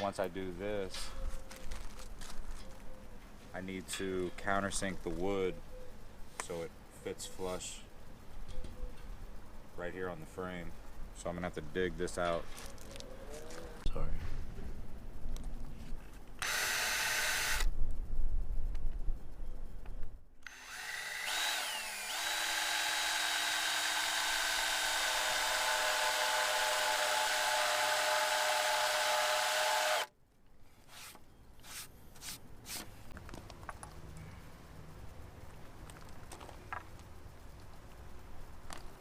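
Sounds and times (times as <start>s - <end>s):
power drill whining into wood: 16.4s - 17.7s, 20.4s - 30.1s.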